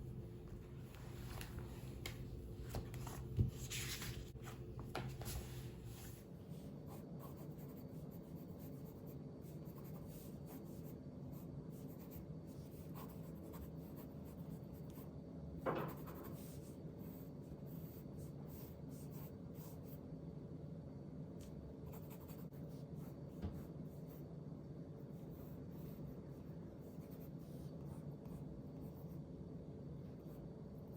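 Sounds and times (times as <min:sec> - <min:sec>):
low room hum: 0:00.0 - 0:30.9
pen scratching on paper: 0:06.9 - 0:15.0, 0:15.8 - 0:20.0, 0:21.9 - 0:24.2.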